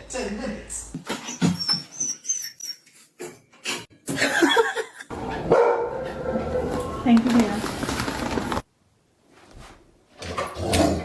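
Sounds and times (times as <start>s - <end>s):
dog barking: 5.2s - 6.9s.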